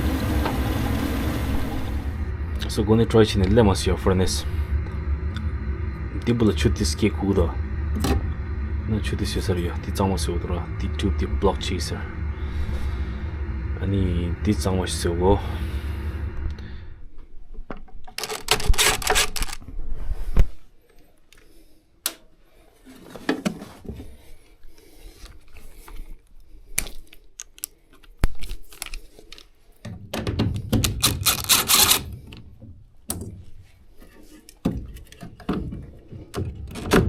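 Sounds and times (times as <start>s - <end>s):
hands and tools clicking and scraping: 26.8s - 32.4s.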